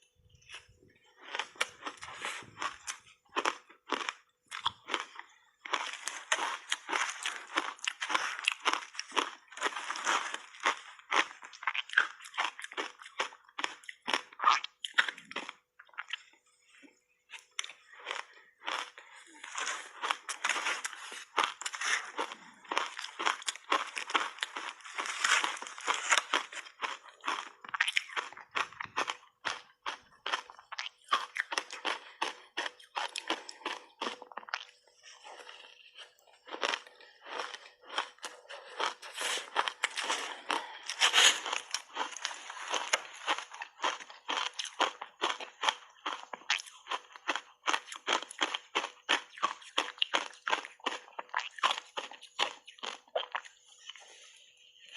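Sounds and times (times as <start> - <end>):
ice crunching while chewed: 0.3 - 54.9
shaved ice crunching: 24.8 - 26.6.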